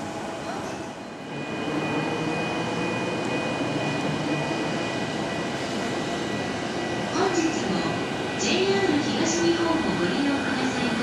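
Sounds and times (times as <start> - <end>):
electric train rumbling: 0.0 - 11.0
high-pitched train whine: 0.0 - 11.0.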